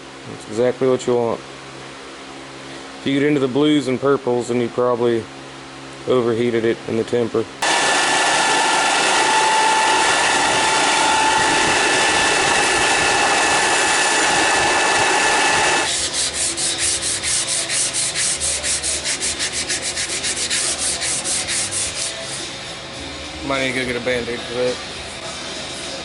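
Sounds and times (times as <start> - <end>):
rhythmic rubbing strokes: 9.7 - 22.9.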